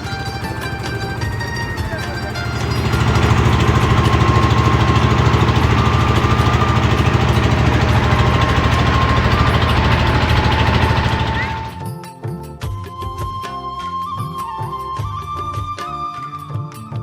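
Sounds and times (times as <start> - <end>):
boat engine chugging: 0.0 - 11.8.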